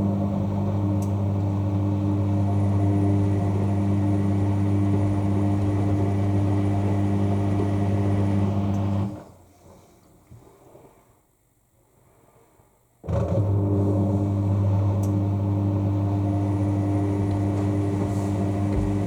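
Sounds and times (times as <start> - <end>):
washing machine drain pump humming: 0.0 - 9.2, 13.1 - 19.0.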